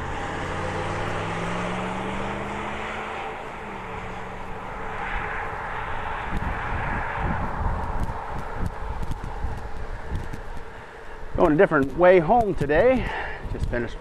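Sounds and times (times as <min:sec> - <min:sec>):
engine hum: 0:00.0 - 0:14.0
steady rush of noise: 0:00.0 - 0:14.0.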